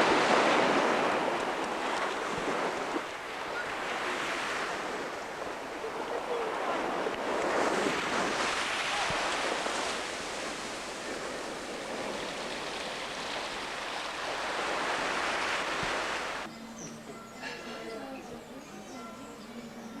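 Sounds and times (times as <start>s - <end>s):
ocean surf washing on shore: 0.0s - 16.5s.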